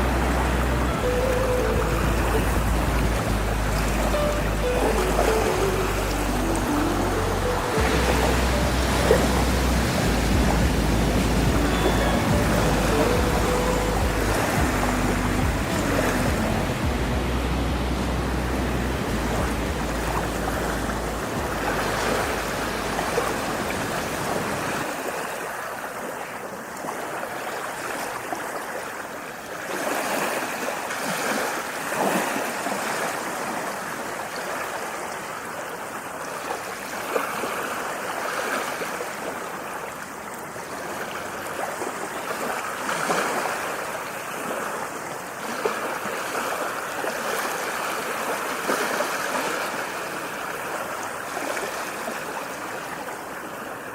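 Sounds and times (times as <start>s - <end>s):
deep low rumble: 0.0s - 23.9s
rushing water: 0.0s - 53.9s.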